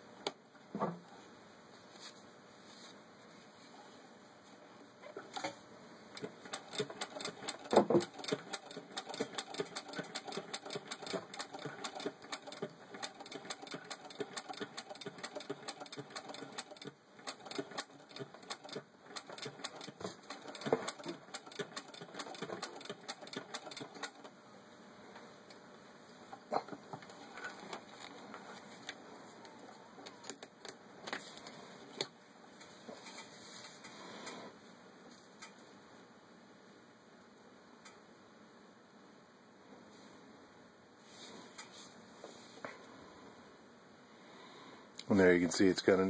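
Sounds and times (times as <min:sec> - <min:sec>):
sewing machine knocks: 0:06.2 - 0:09.8
sewing machine clicking: 0:06.2 - 0:24.3.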